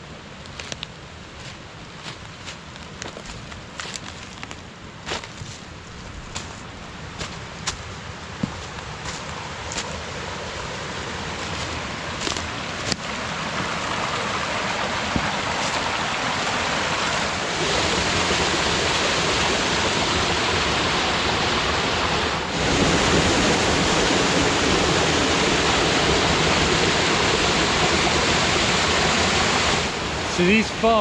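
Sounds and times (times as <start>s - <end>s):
small waterfalls rushing: 7.2s - 31.0s.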